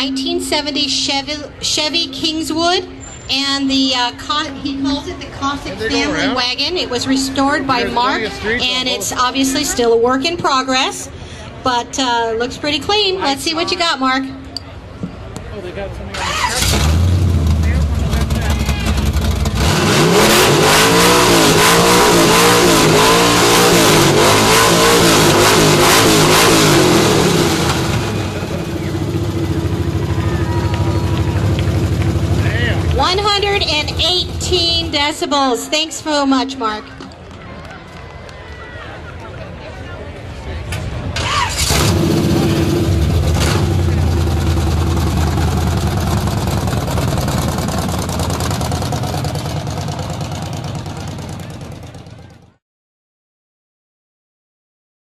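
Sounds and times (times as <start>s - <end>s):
car engine revving and idling: 16.1s - 35.1s, 41.2s - 52.4s.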